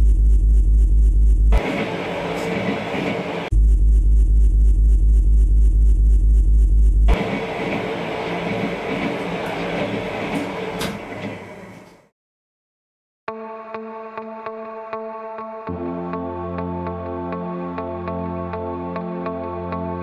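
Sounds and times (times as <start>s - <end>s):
train running noise: 1.5s - 3.5s, 7.1s - 12.1s
train rumble: 1.5s - 4.0s, 7.1s - 12.1s.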